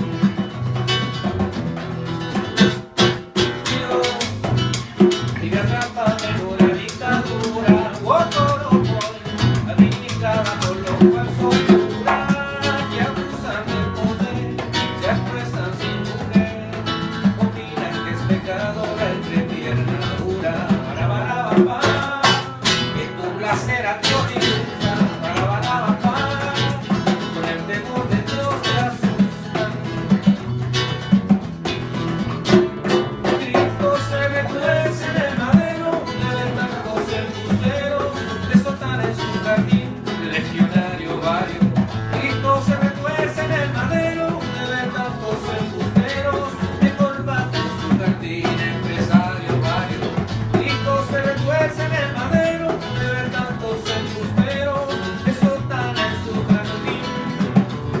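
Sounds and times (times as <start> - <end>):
bass line: 0.0 - 58.0
guitar: 0.0 - 58.0
live band playing: 0.0 - 58.0.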